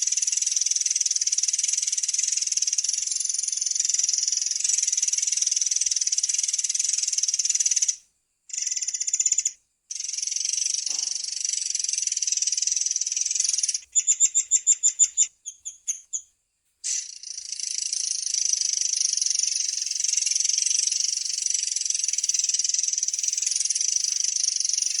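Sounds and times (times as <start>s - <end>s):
songbird rolling trill: 16.9s - 25.0s.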